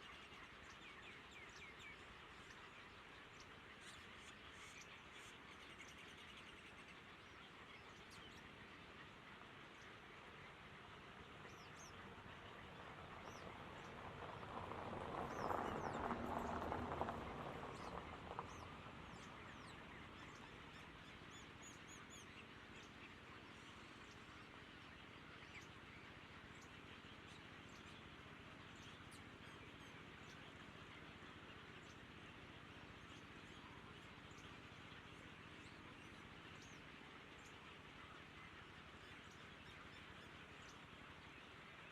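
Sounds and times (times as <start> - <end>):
small birds chirping: 0.0 - 41.9
broad rush of noise: 8.0 - 21.9.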